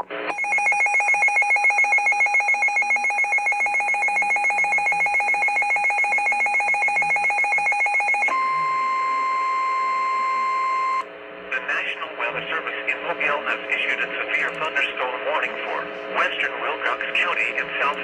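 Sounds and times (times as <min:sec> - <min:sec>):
pulsing electronic alarm tone: 0:00.3 - 0:11.0.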